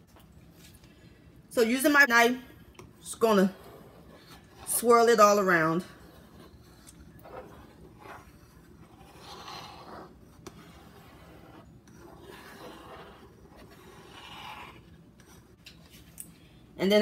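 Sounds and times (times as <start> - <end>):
knife swishing through cream: 3.2 - 15.6.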